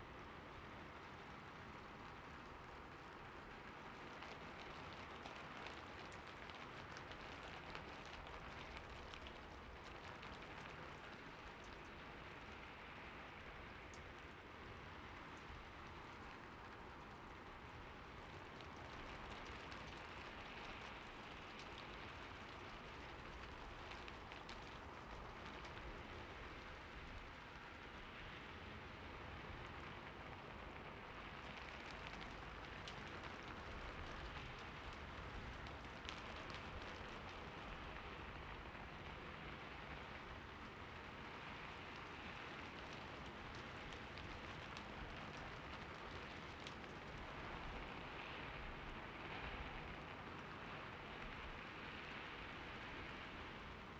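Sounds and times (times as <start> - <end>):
steady rain hiss: 0.0 - 53.9.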